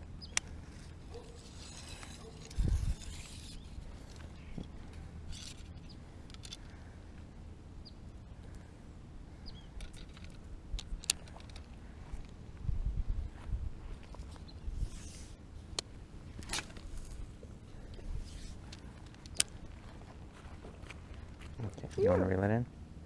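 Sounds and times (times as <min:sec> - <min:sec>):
steady low rumble: 0:00.0 - 0:23.0
faint bird chirps: 0:09.4 - 0:09.8.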